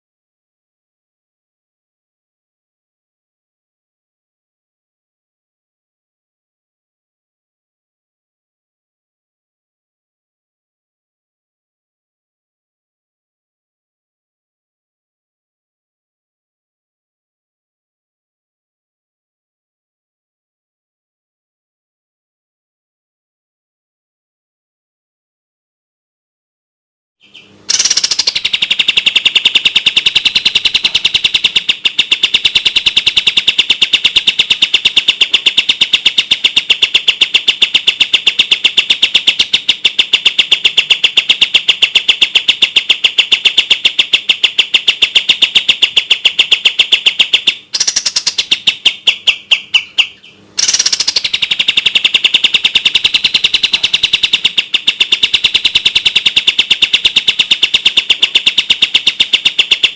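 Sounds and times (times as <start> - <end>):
bird song of rapid high notes: 27.2 - 59.9.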